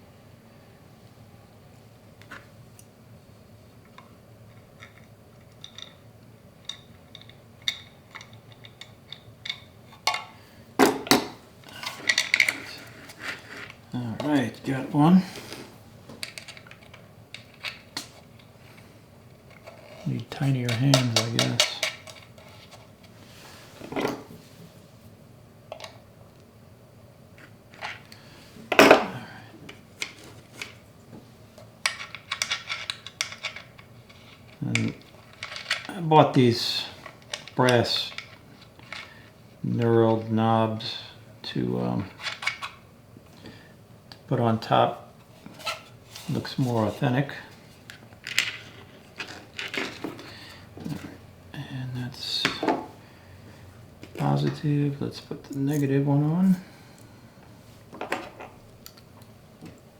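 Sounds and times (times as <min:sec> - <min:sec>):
small parts clicking and knocking: 0:04.0 - 0:13.8, 0:16.1 - 0:18.5, 0:20.7 - 0:22.9, 0:31.8 - 0:36.0, 0:37.0 - 0:39.2.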